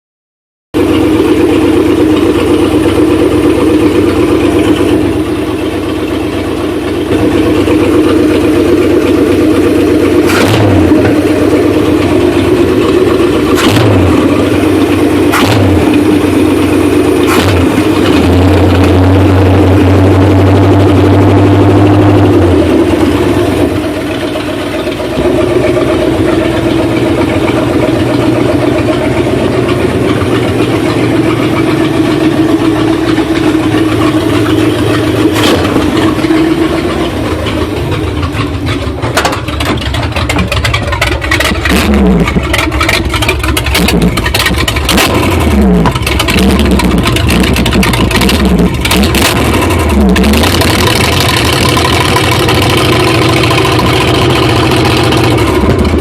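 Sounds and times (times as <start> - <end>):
engine running roughly: 0.7 - 56.0
sharp clicks and pops: 15.3 - 16.0, 38.1 - 56.0.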